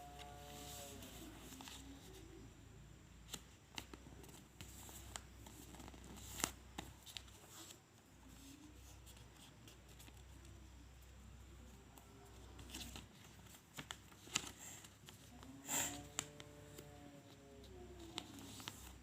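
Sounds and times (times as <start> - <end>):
paper rustling and creasing: 0.0 - 2.4, 3.3 - 10.4, 11.9 - 19.0.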